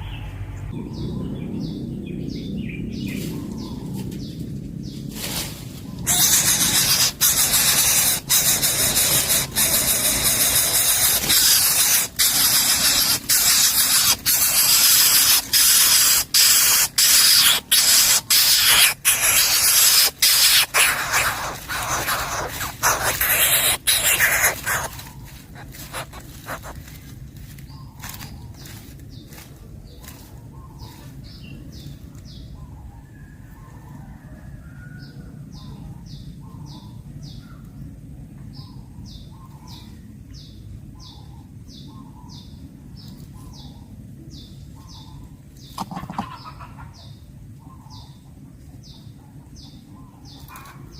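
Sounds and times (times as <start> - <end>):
bird nestling hissing: 6.1 - 26.9.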